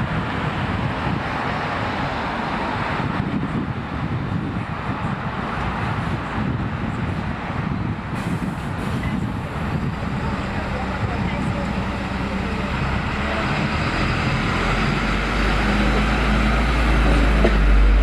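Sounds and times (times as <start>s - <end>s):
road and vehicle engine rumble: 0.0s - 18.0s
wind noise on microphone: 0.0s - 18.0s.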